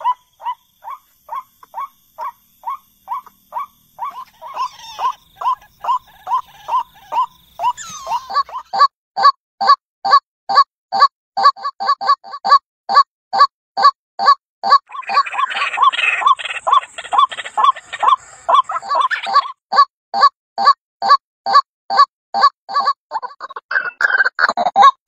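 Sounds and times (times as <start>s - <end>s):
waterhen harsh repeated call: 0.0s - 8.4s, 14.7s - 19.6s.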